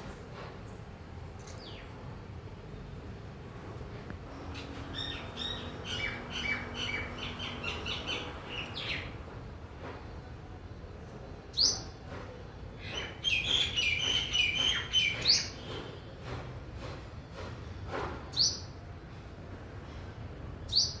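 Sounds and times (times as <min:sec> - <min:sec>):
birds twittering rapidly: 0:04.3 - 0:09.4, 0:12.8 - 0:16.0.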